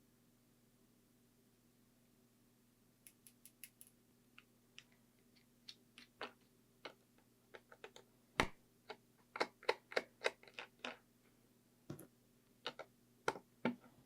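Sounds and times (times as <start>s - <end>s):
small tools clicking and tapping: 3.1s - 3.9s.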